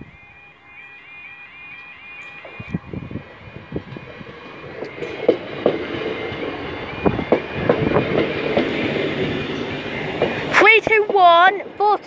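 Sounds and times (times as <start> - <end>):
faint level crossing alarm: 0.0 - 11.0
train rumble: 0.0 - 12.0
train wheels clacking over rail joints: 3.9 - 12.0.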